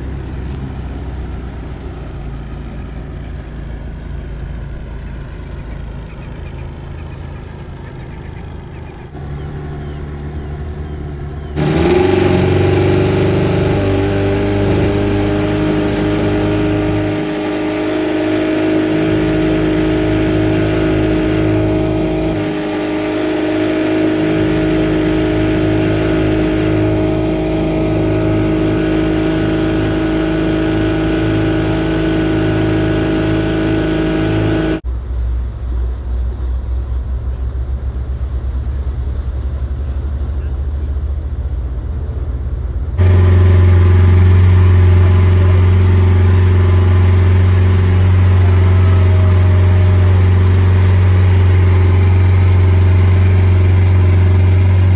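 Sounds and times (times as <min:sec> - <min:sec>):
boat motor running: 0:04.4 - 0:34.8, 0:43.0 - 0:54.9.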